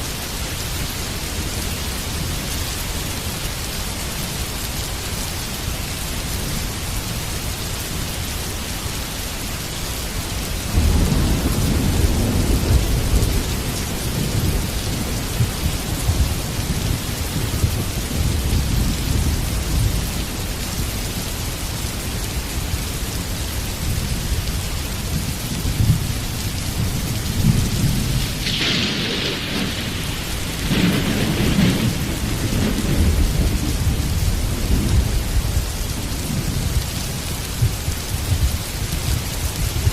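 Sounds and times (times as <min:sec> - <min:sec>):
heavy rain falling: 0:00.0 - 0:39.9
thunder rumbling: 0:10.7 - 0:20.6, 0:23.9 - 0:38.8
sharp thunderclaps: 0:10.8 - 0:19.2, 0:27.2 - 0:35.4.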